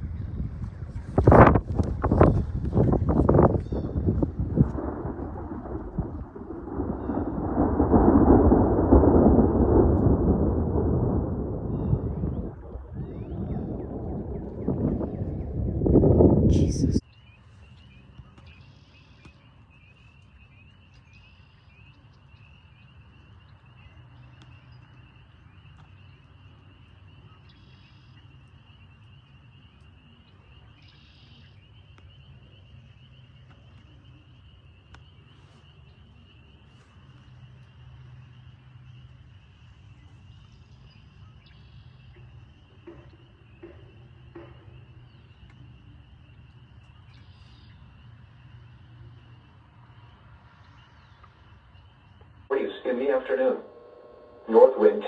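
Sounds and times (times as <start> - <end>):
low steady hum: 0.0 - 17.0, 52.1 - 55.0
frogs calling: 24.8 - 55.0.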